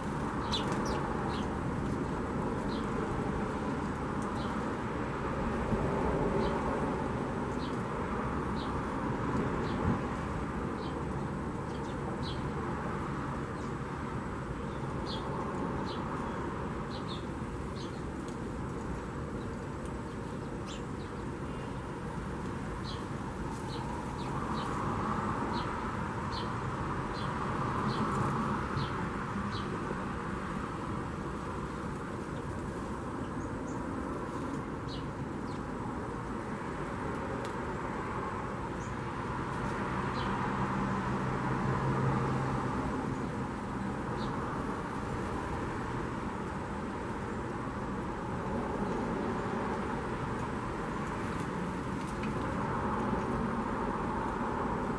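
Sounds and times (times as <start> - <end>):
small birds chirping: 0.0 - 3.6, 14.6 - 36.0, 43.0 - 45.6.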